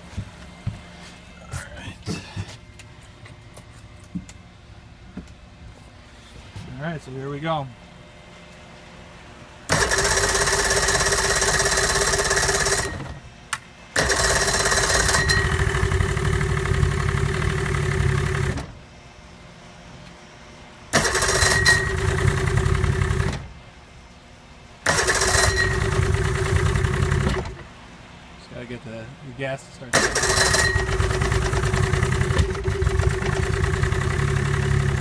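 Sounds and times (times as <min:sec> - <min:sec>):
outboard motor cranking: 0:09.7 - 0:13.1, 0:14.0 - 0:18.7, 0:21.0 - 0:23.5, 0:24.8 - 0:27.6, 0:30.0 - 0:35.0.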